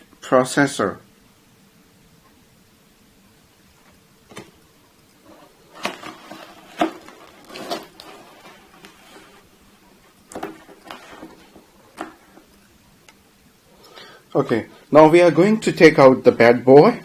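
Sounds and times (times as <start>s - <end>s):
packaging rustling: 5.2s - 12.6s.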